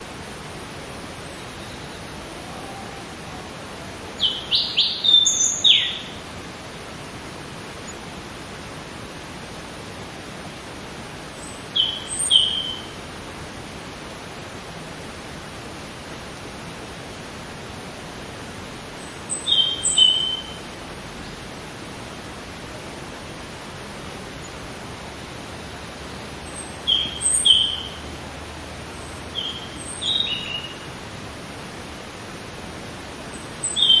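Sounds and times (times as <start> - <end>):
background hiss: 0.0 - 34.0
birds chirping: 4.1 - 6.3, 11.4 - 13.0, 19.0 - 20.6, 26.4 - 28.2, 28.8 - 30.9, 33.2 - 34.0.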